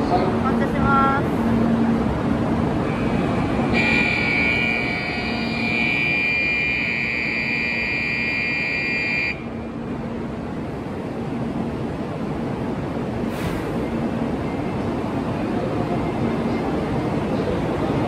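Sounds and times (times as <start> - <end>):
high electronic buzzer tone: 3.8 - 9.4
train running gear rumble: 9.5 - 18.0.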